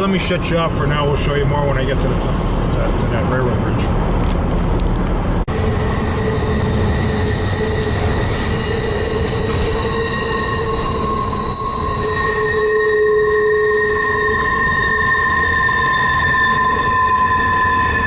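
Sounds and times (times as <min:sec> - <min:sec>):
train rumble: 0:00.0 - 0:18.0
train wheels squealing on rails: 0:05.5 - 0:18.0.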